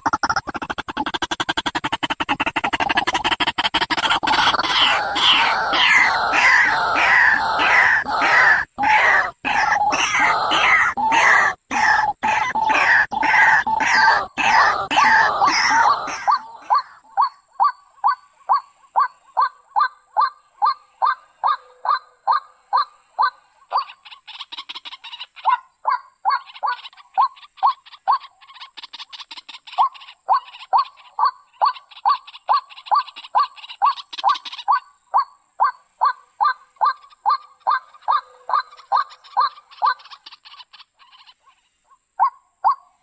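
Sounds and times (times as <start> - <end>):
high ticking rattle: 0.0 - 4.5
bird harsh repeated calls: 0.0 - 43.0.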